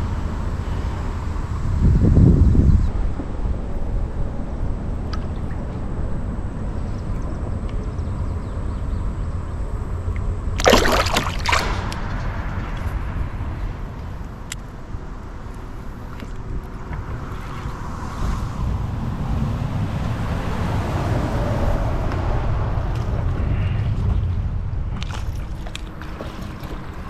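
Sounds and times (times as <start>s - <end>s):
low rumble: 0.0s - 27.0s
river water sloshing: 9.6s - 18.1s, 24.9s - 27.0s
water splash: 10.6s - 12.9s.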